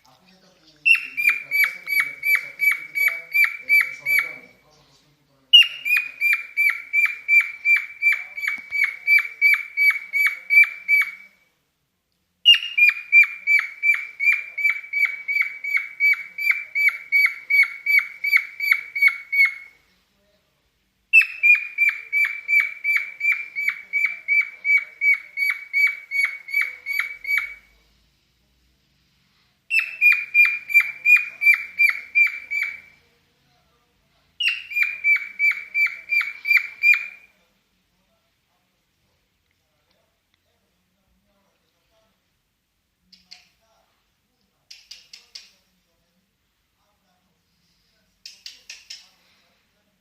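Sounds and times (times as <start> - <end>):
cockatiel chirping: 0.8 - 4.6, 5.5 - 11.4, 12.4 - 19.8, 21.1 - 27.8, 29.7 - 33.0, 34.4 - 37.3.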